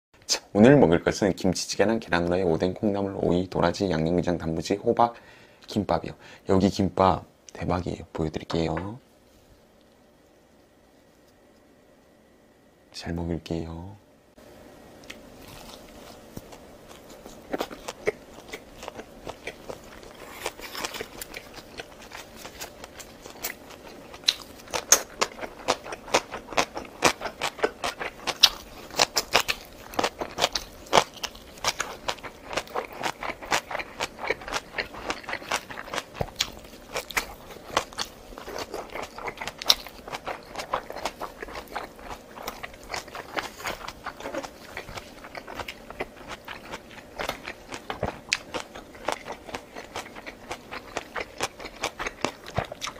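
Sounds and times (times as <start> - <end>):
person chewing and crunching food: 15.0 - 52.9.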